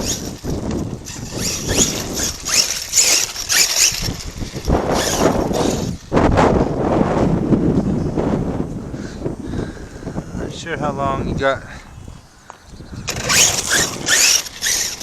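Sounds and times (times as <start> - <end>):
tyres scrabbling on dirt: 0.0 - 6.0, 13.0 - 15.0
electric motor whining: 0.0 - 6.1, 13.0 - 15.0.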